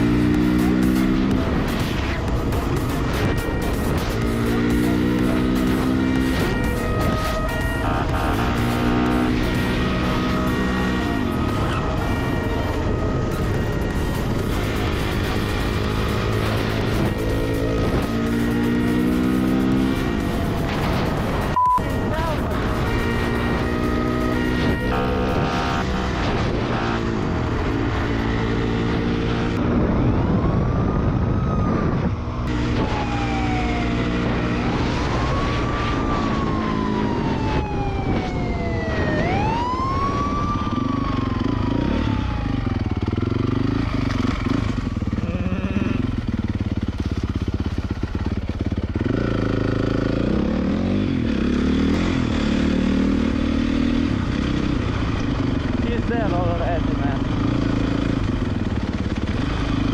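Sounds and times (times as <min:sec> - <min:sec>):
police siren wailing: 0:00.0 - 0:47.4
dirt bike engines revving: 0:43.1 - 0:46.6.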